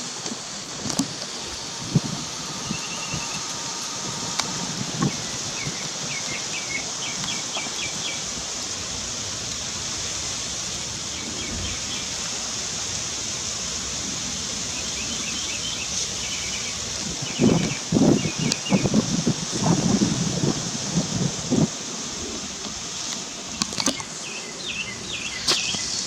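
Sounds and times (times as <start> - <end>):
steady high hiss: 0.0 - 26.0
small birds chirping: 1.3 - 8.3, 14.7 - 21.6, 23.5 - 26.0.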